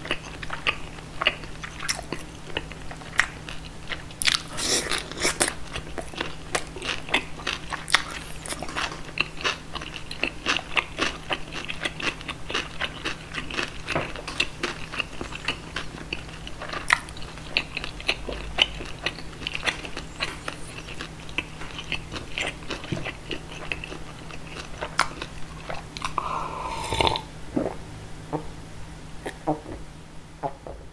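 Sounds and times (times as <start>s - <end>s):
crunchy chewing: 0.0s - 27.7s
wet mouth clicks: 26.0s - 27.8s.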